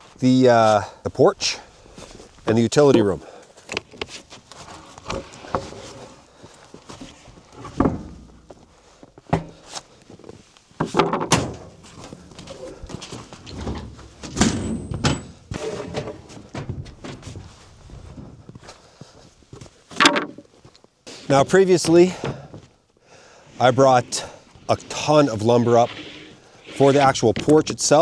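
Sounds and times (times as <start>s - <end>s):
heavy wooden thuds: 7.6s - 8.6s, 10.8s - 18.4s, 20.0s - 20.5s, 21.8s - 22.7s.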